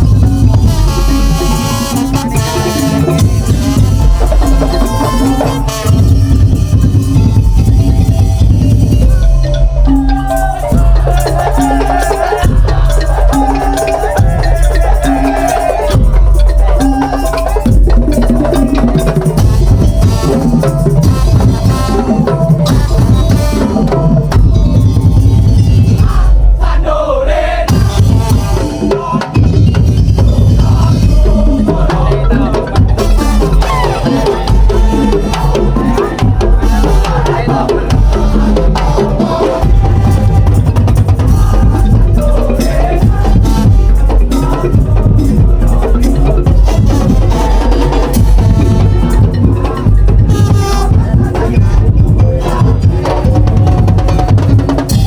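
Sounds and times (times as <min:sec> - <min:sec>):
pitched melodic lines: 0:00.0 - 0:26.0
heavy bass beat: 0:00.0 - 0:55.0
percussion ensemble playing: 0:00.0 - 0:55.0
wooden slit drums and drums: 0:00.0 - 0:55.0.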